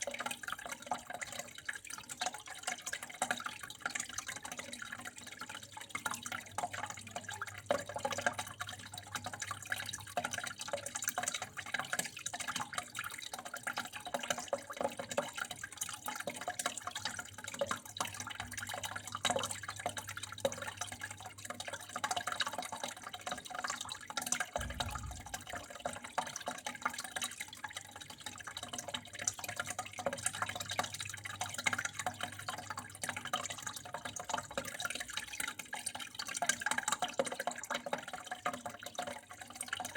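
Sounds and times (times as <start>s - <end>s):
water flowing and dripping: 0.0s - 39.9s
low thud: 24.6s - 25.7s
low steady hum: 24.6s - 26.0s.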